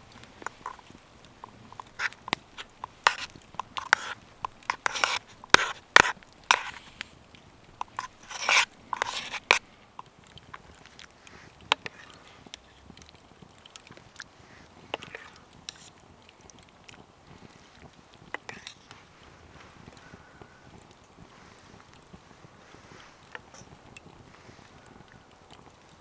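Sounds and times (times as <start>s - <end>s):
close crunching and sharp clicks: 0.0s - 17.1s.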